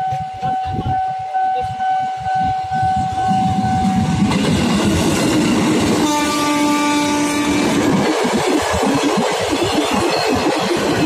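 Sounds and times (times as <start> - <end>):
electric train passing: 0.0 - 11.0
train horn: 5.9 - 7.9.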